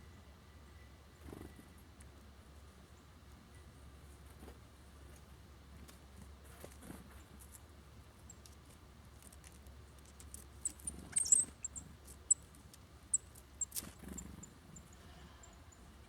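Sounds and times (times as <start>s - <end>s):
songbirds high thin calls: 10.6s - 12.5s, 13.1s - 16.0s.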